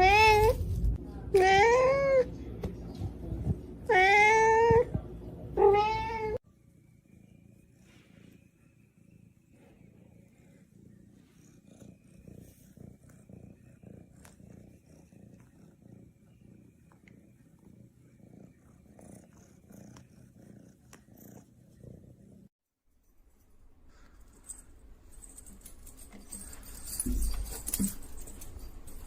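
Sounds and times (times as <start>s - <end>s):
cat purring faintly: 6.4s - 22.5s.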